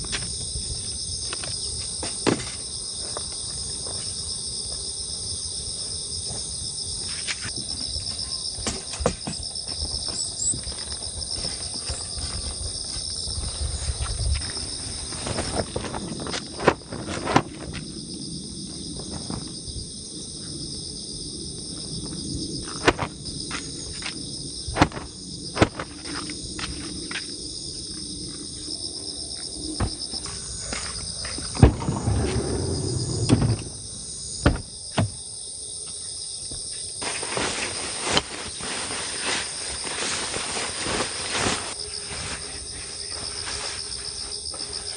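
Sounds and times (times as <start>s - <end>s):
insect chirring: 0.0s - 44.9s.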